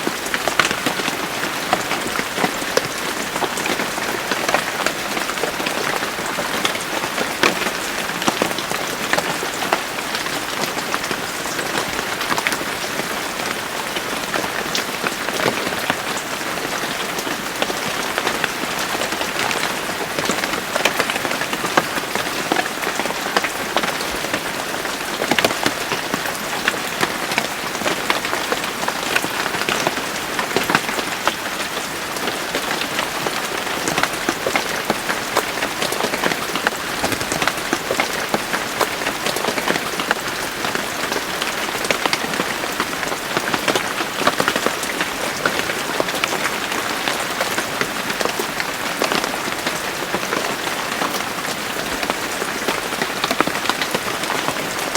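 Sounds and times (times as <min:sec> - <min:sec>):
rain on a hard surface: 0:00.0 - 0:54.9.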